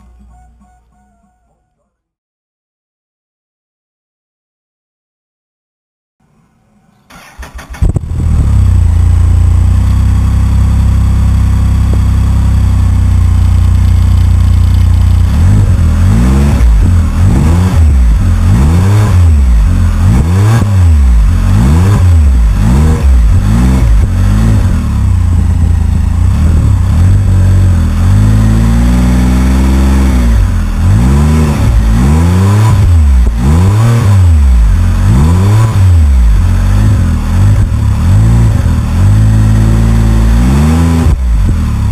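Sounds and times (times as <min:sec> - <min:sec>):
engine starting and idling: 0:06.2 - 0:08.8
engine revving: 0:07.1 - 0:41.9.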